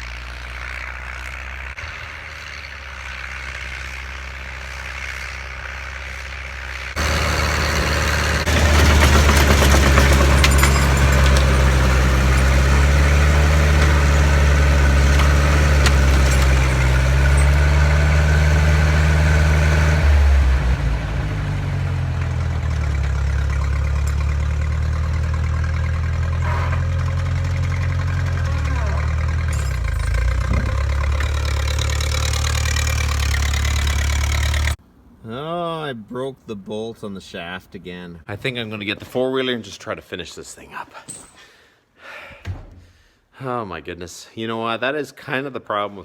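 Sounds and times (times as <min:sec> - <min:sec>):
snowblower rushing and rattling: 0:00.0 - 0:34.8
tractor engine running: 0:00.0 - 0:34.8.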